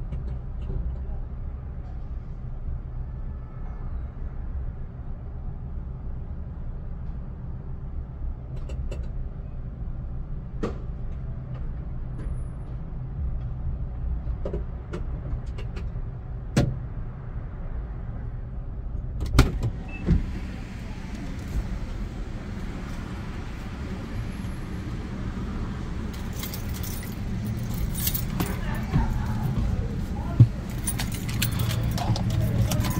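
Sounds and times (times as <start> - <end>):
car engine idling: 19.7 - 32.9.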